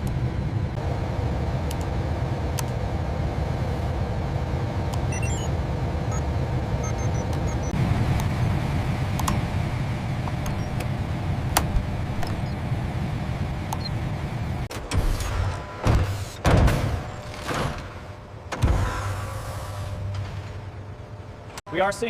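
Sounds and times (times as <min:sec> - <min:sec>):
industrial machinery rumble: 0:00.0 - 0:22.0
short high electronic beeps: 0:06.8 - 0:07.7.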